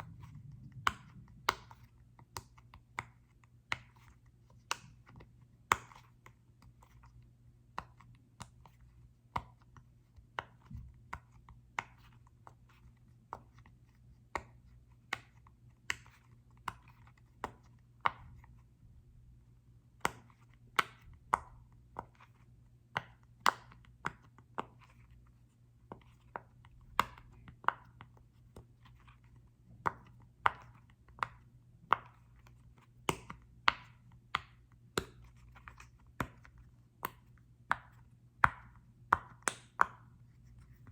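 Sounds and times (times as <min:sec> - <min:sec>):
sharp taps on small ball: 0:20.0 - 0:25.2, 0:25.9 - 0:40.9.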